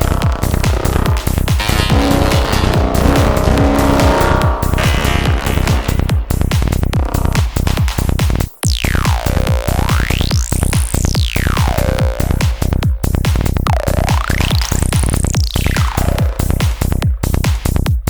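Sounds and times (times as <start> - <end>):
psytrance kick and bass: 0.0 - 18.0
synth swooping in pitch: 0.4 - 6.7.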